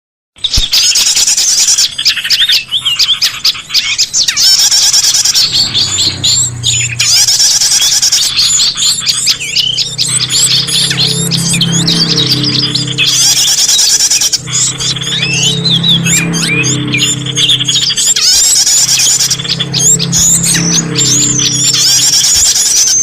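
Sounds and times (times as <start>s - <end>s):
songbirds chirping and trilling: 0.4s - 23.0s.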